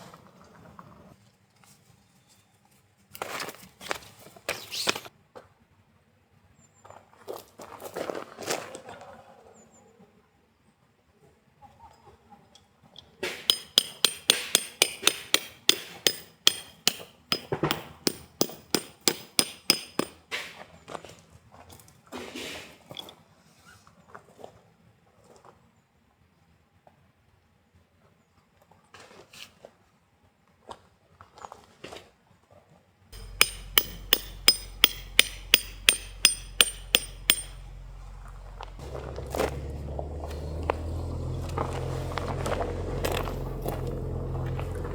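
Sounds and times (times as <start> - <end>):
hammer striking metal: 13.5 - 20.2, 33.2 - 38.2.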